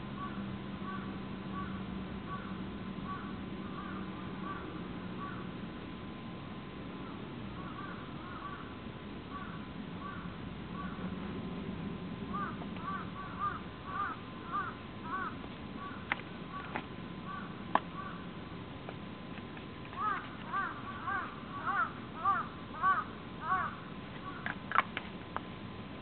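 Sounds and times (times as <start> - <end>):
birds calling: 0.0 - 5.6, 7.0 - 11.3, 12.3 - 18.4, 19.9 - 24.9
faint low hum: 0.0 - 26.0.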